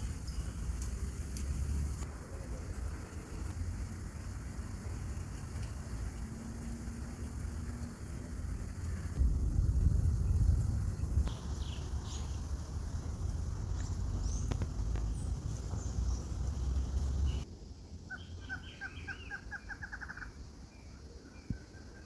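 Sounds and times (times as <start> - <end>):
wind rumble on microphone: 0.0 - 17.4
bird calls: 18.1 - 22.0.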